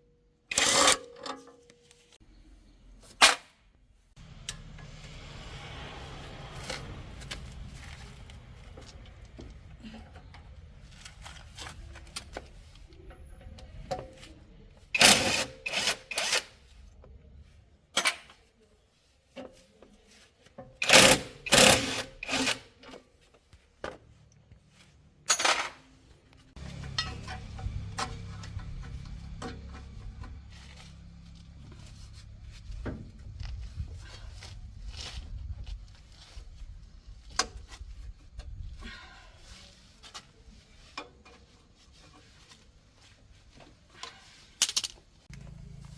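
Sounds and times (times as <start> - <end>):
tools scraping on metal: 0.5 - 2.2, 26.6 - 32.3
low steady rumble: 26.6 - 35.9.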